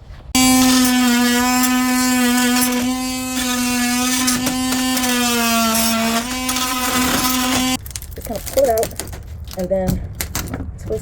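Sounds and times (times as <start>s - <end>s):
power tool motor running: 0.4s - 7.8s.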